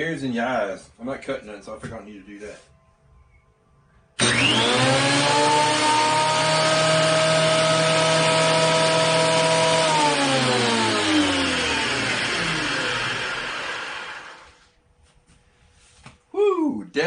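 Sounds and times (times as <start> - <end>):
thickness planer whining: 4.2 - 14.7.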